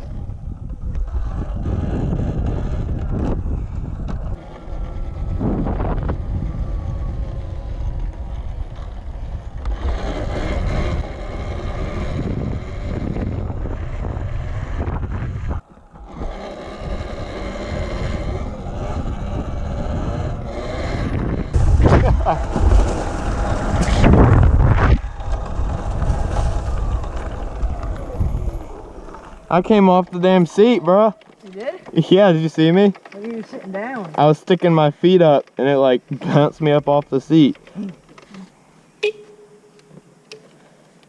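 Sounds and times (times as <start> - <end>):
wind buffeting microphone: 0.0 - 34.3
tyre rumble on trail: 0.0 - 38.3
electric motor whine: 0.9 - 30.0.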